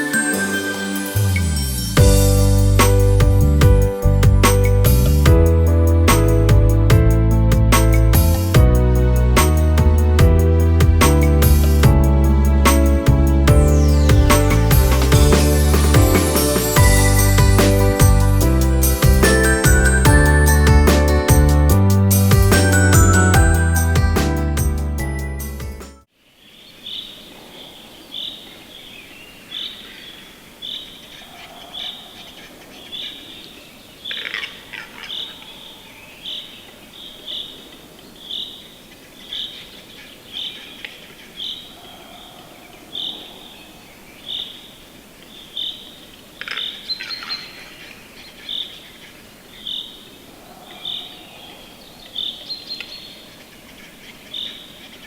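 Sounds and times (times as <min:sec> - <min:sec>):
bird chirping: 0:26.4 - 0:55.0.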